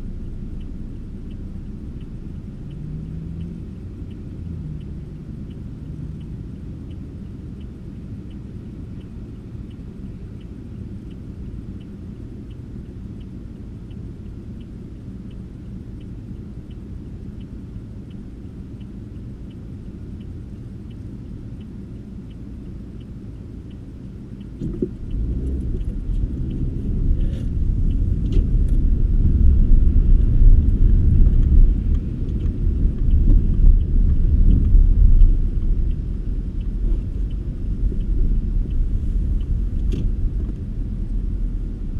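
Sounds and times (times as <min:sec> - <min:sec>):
car engine and road rumble: 0:00.0 - 0:41.9
faint regular ticking: 0:00.0 - 0:41.9.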